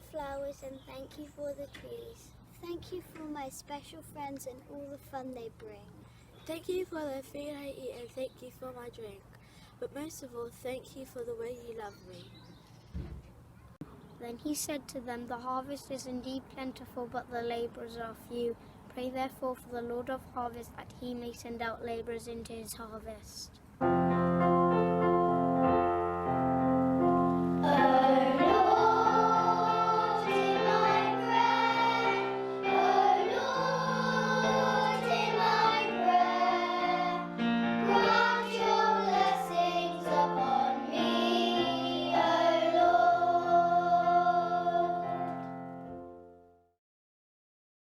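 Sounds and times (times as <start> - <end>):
piano accompaniment: 23.8 - 46.7
children singing: 27.6 - 45.6.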